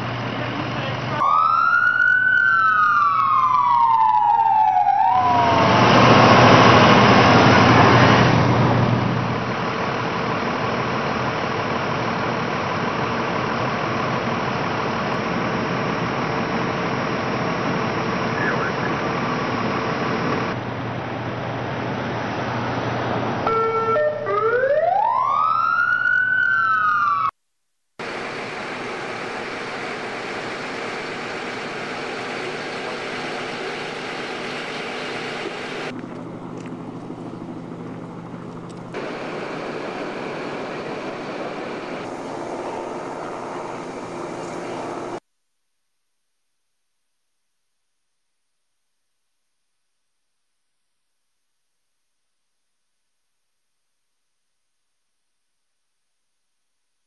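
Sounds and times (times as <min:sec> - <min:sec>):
emergency vehicle siren wailing: 0:00.0 - 0:27.4, 0:28.0 - 0:45.2
steady rushing noise: 0:38.9 - 0:45.2.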